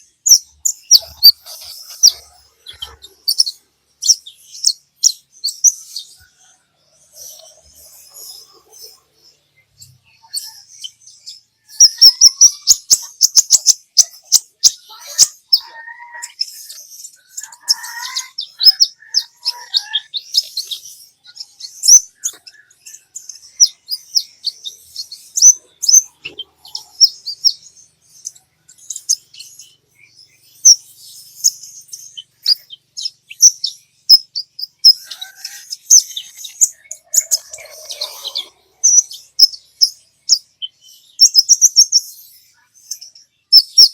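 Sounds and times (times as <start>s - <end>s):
sunbird chirping and trilling: 0.0s - 43.9s.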